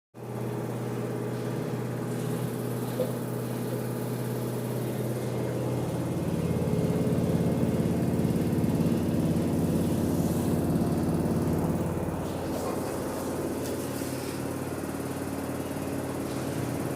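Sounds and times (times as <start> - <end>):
washing machine spin drone: 0.2 - 16.9.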